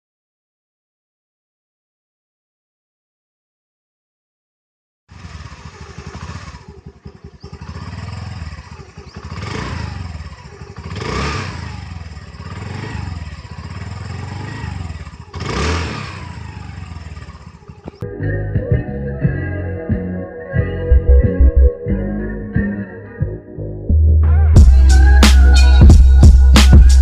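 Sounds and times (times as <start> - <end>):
scooter engine idling: 5.1 - 18.0
scooter throttle blips: 5.1 - 18.0.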